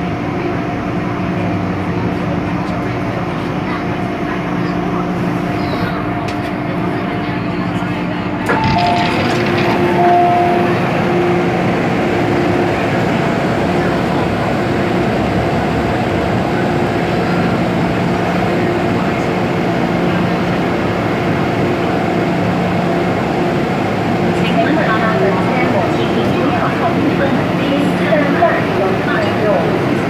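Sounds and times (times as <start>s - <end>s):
train wheels rumbling on track: 0.0s - 30.0s.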